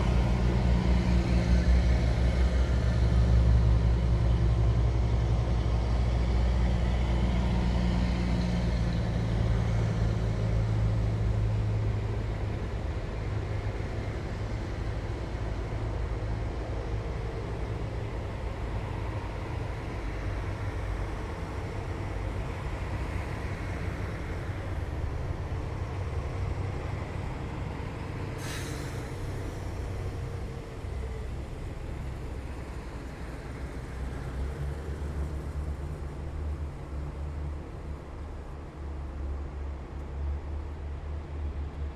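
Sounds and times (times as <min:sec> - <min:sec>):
heavy diesel engines rumbling: 0:00.0 - 0:41.9
short hiss: 0:28.4 - 0:29.6.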